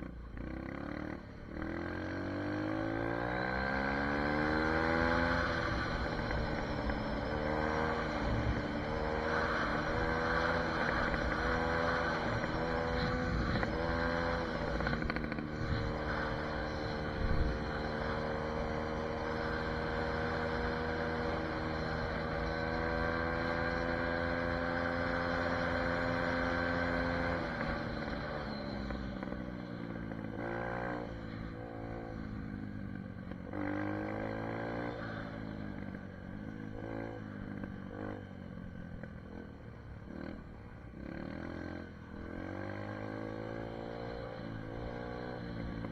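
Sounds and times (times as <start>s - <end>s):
dirt bike engine revving: 0.4s - 32.4s.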